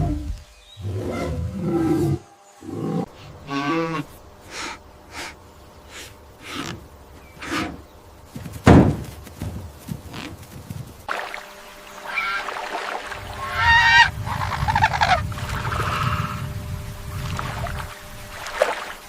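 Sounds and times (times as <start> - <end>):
large animal calling: 11.9 - 16.5.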